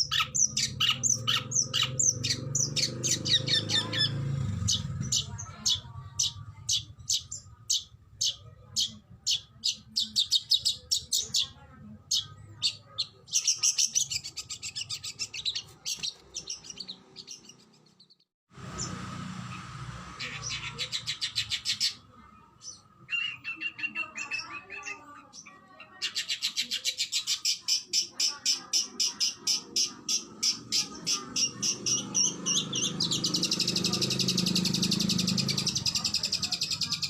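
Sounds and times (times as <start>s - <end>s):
lower-pitched bird trill: 26.1s - 37.0s.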